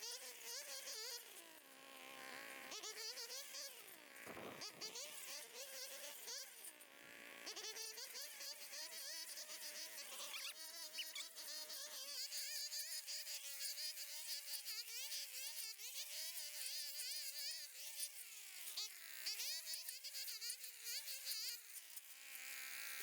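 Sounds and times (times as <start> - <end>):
thin buzzing whine: 4.2 - 5.2.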